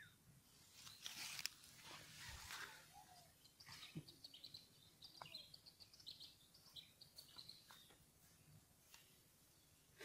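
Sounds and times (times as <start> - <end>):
faint bird chirping: 0.0 - 10.0.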